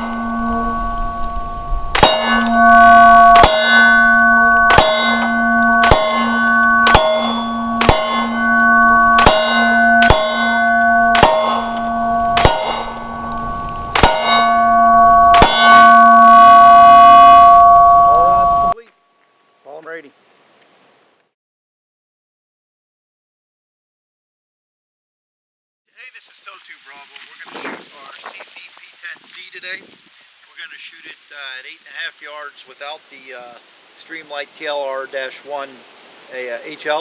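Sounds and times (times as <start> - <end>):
metallic ringing: 0.0 - 18.8.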